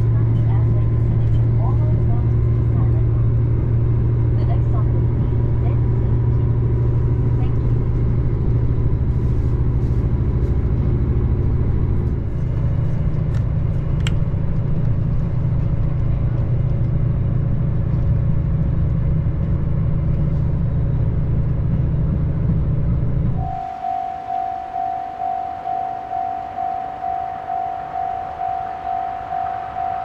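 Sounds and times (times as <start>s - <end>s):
train rumbling from inside: 0.0s - 30.0s.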